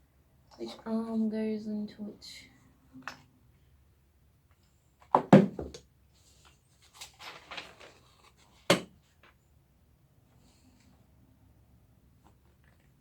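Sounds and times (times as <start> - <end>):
chair parts knocking: 5.2 - 5.8
rustling and scraping: 6.2 - 9.4.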